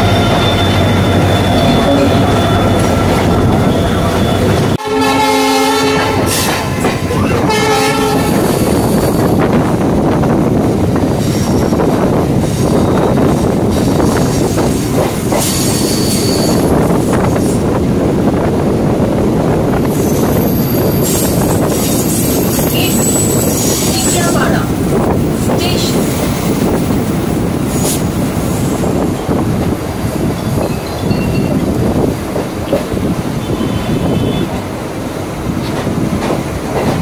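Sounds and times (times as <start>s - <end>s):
train wheels rumbling on rail: 0.0s - 37.0s
train horn blasts: 1.6s - 3.4s, 4.7s - 6.5s, 7.4s - 8.6s, 33.4s - 34.6s.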